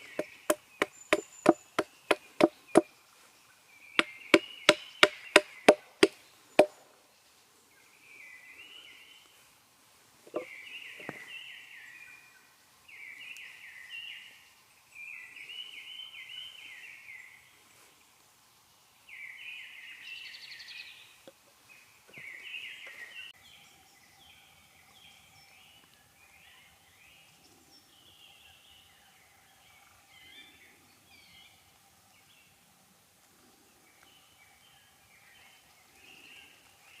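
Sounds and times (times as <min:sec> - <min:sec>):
songbird trilling: 0:00.0 - 0:02.9.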